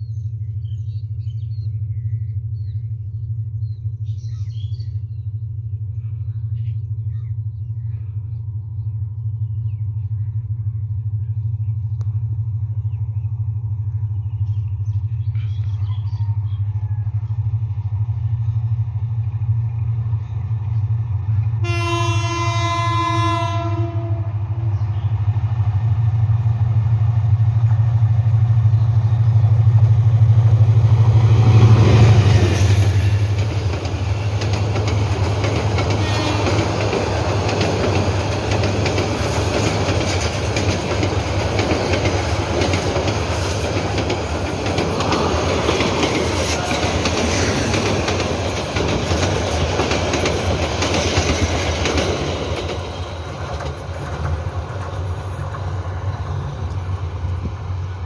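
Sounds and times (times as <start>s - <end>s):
train rumbling: 0.0s - 58.0s
train wheels roaring on rails: 0.0s - 58.0s
locomotive horn: 21.6s - 24.7s, 35.9s - 36.8s.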